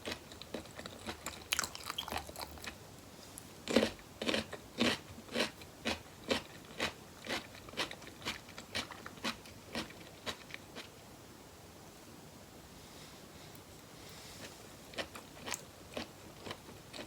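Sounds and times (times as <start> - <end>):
crunchy chewing: 0.0 - 2.8, 3.4 - 10.9, 14.4 - 17.0.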